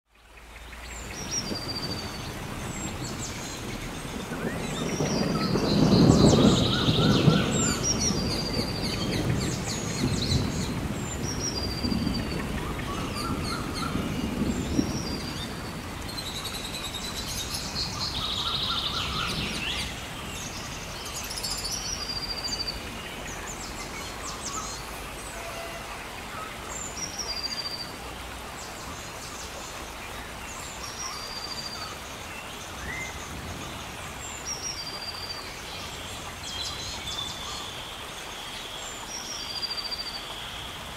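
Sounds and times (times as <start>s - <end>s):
steady rain: 0.1s - 40.9s
birds chirping: 0.3s - 28.0s
low rumble of thunder: 1.1s - 27.2s, 32.6s - 37.4s.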